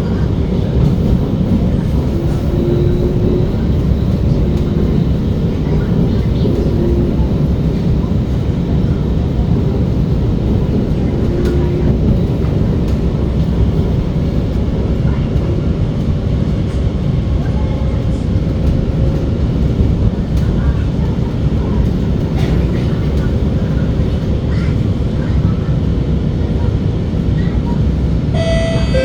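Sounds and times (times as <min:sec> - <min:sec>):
metro train rumbling on track: 0:00.0 - 0:29.0
faint tone: 0:28.4 - 0:29.0.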